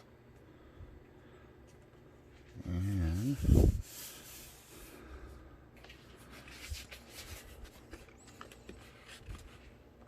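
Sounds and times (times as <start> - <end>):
scuffs and rustles of handling: 5.7 - 10.0.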